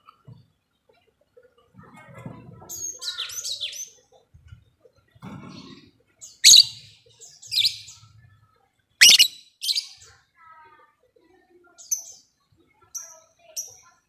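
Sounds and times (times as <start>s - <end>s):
lovebirds chirping shrilly: 6.4s - 6.8s, 9.0s - 10.0s
sharp loud bird calls: 6.4s - 6.9s, 9.0s - 10.0s.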